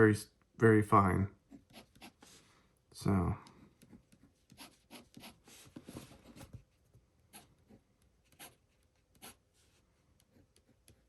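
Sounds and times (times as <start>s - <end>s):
fountain pen scratching on paper: 1.6s - 2.3s, 4.5s - 5.6s, 8.3s - 9.4s.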